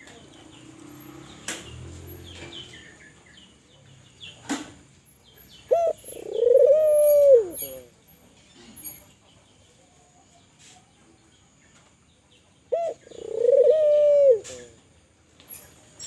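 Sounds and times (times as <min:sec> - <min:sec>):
small birds chirping: 0:00.0 - 0:16.0
dove cooing: 0:05.7 - 0:07.9, 0:12.7 - 0:14.8.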